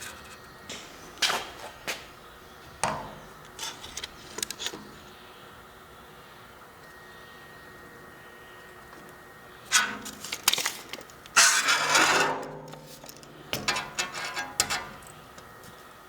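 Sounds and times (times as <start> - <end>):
hard objects clattering and scraping: 9.7 - 15.2.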